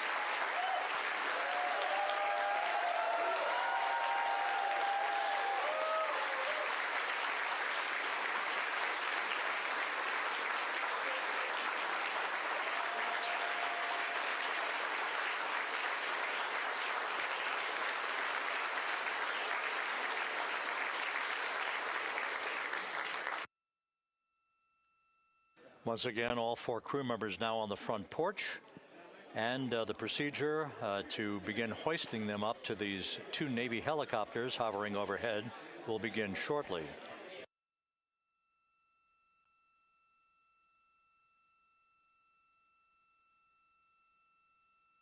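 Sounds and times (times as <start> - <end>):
crowd applauding: 0.0 - 23.5.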